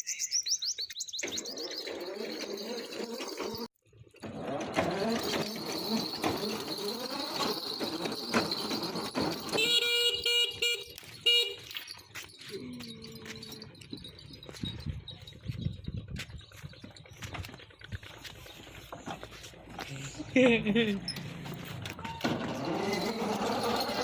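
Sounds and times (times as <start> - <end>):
horn honking: 8.5 - 11.9.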